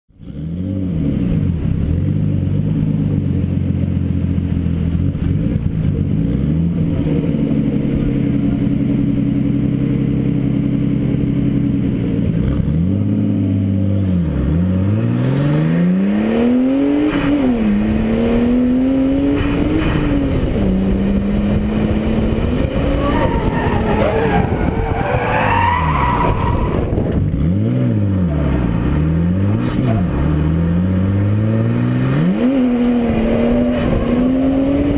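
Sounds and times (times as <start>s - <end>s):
car engine revving: 0.2s - 34.9s
tyres squealing: 22.7s - 27.0s.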